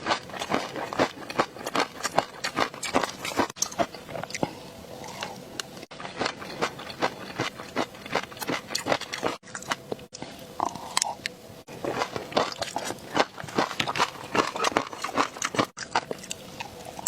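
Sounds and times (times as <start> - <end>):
wet chewing: 0.0 - 9.9, 10.6 - 17.0.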